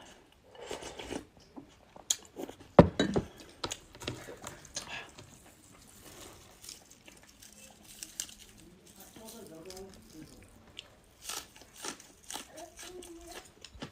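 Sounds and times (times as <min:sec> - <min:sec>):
eating crunches and clicks: 0:06.2 - 0:13.9.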